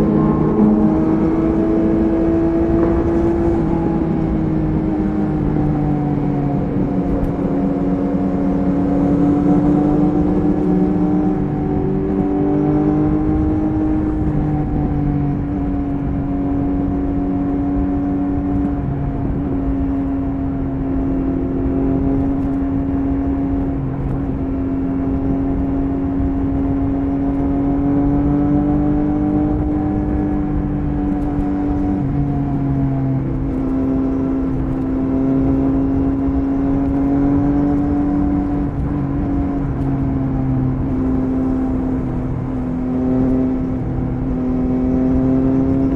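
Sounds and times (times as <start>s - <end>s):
motorcycle engine cruising: 0.0s - 45.9s
wind and road noise: 0.0s - 45.9s.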